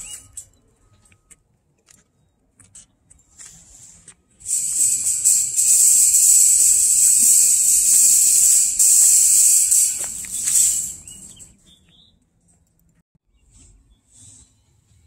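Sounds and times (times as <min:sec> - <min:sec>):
cicadas buzzing: 0:04.5 - 0:11.4.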